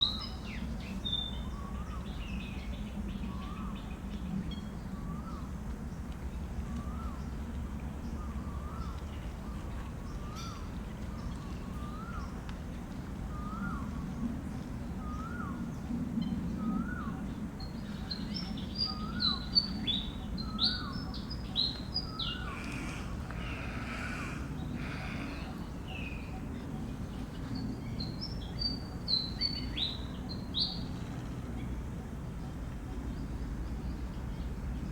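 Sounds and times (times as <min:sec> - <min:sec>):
steady low hum: 0:19.7 - 0:29.1
bird rising and falling call: 0:22.0 - 0:26.2.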